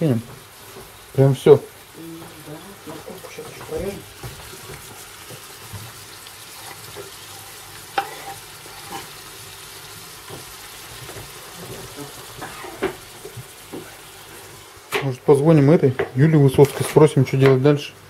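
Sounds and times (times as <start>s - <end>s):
food sizzling in a pan: 0.0s - 18.0s
knife scraping a chopping board: 8.0s - 9.1s.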